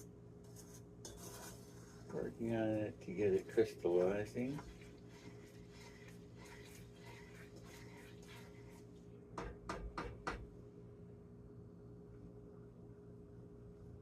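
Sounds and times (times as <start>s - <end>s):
steady low hum: 0.0s - 14.0s
faint light scraping: 0.4s - 2.3s, 3.3s - 8.9s.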